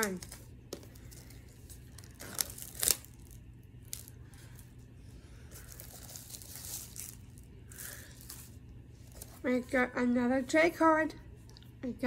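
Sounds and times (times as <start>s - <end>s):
plastic wrap tearing and crinkling: 0.0s - 4.7s, 5.5s - 9.4s.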